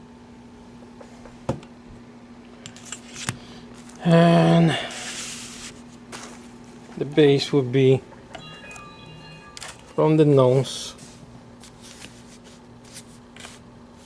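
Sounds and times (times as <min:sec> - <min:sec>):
low electrical hum: 0:00.0 - 0:14.0
person speaking: 0:08.6 - 0:11.3.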